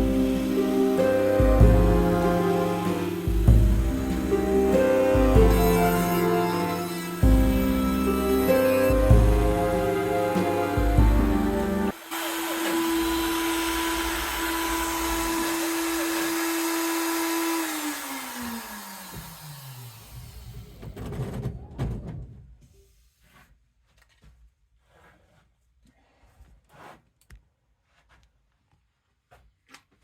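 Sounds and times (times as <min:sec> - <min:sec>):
router spindle whining: 0:00.0 - 0:21.0.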